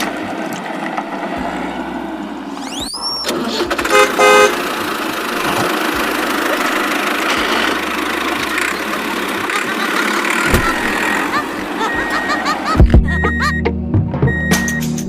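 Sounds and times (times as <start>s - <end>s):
steady engine noise: 0.0s - 13.6s
vehicle horn toots: 3.7s - 4.7s.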